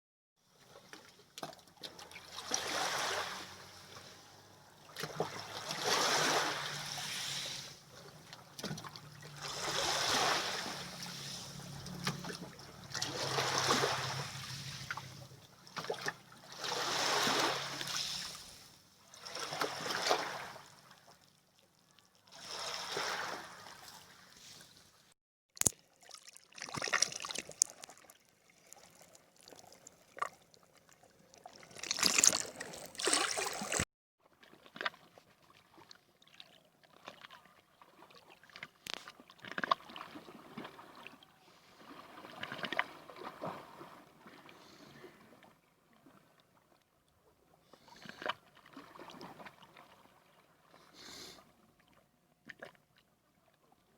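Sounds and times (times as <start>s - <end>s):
water washing and splashing: 5.5s - 18.5s, 26.0s - 30.3s, 31.4s - 33.8s.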